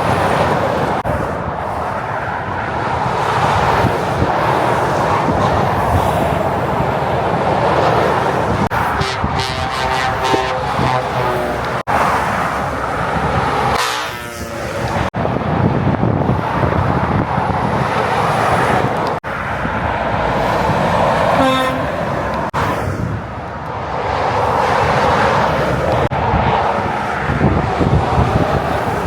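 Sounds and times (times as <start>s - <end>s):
heavy motorway traffic: 0.0s - 29.0s
car horn toot: 8.8s - 11.7s, 13.7s - 14.4s, 21.3s - 22.4s.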